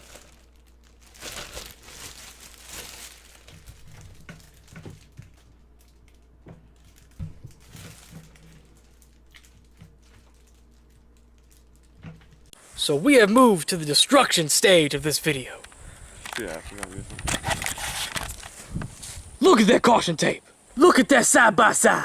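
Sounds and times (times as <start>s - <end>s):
crinkling and rustling: 0.0s - 12.6s, 15.3s - 19.3s
low steady hum: 0.0s - 22.0s.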